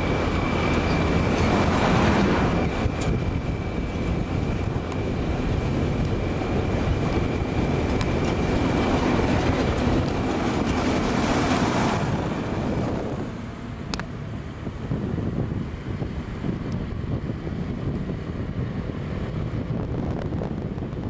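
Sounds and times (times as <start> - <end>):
train passing with high whine: 0.0 - 21.0
wheels rumbling: 0.0 - 21.0
wind on microphone: 0.0 - 21.0.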